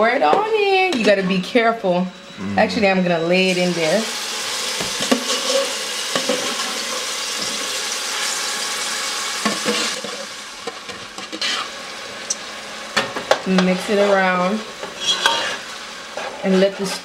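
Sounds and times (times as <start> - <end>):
sauce sizzling in oil: 3.4 - 17.0.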